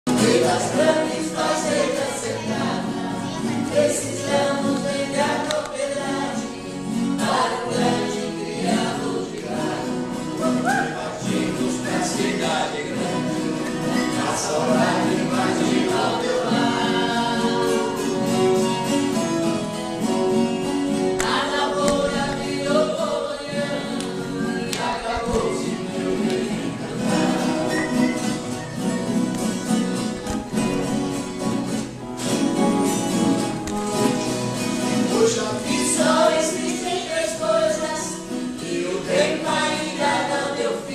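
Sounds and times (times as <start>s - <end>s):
voices singing together: 0.1s - 30.8s, 34.0s - 40.9s
strummed guitar: 0.1s - 40.9s.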